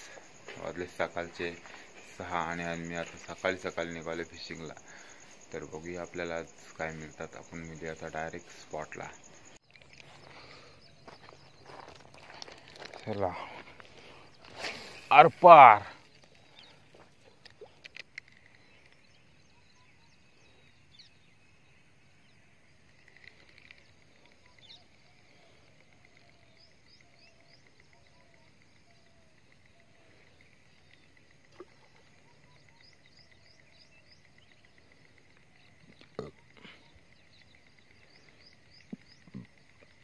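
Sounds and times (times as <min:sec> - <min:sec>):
faint bird chirps: 0:00.0 - 0:40.0
small clicks: 0:16.0 - 0:19.1.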